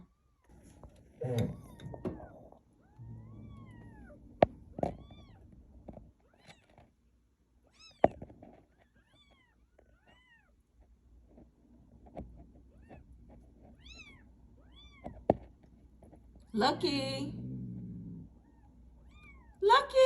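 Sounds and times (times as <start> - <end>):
cat meowing: 1.3 - 4.2.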